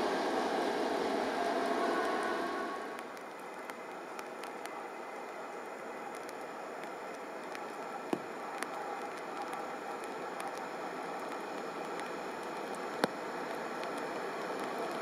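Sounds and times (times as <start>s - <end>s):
distant train rushing noise: 0.0s - 6.2s
raindrop ticks: 3.0s - 15.0s.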